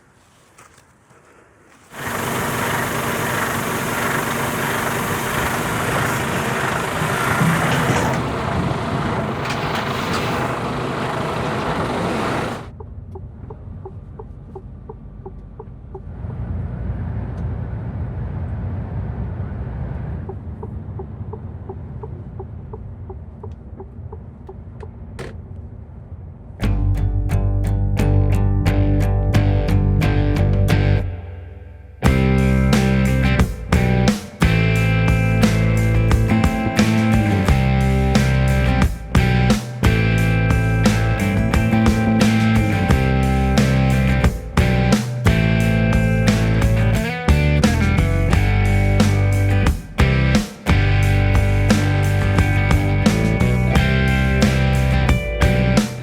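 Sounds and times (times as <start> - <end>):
truck rushing noise: 1.9 - 12.7, 32.0 - 56.0
truck engine running: 1.9 - 25.3, 26.6 - 56.0.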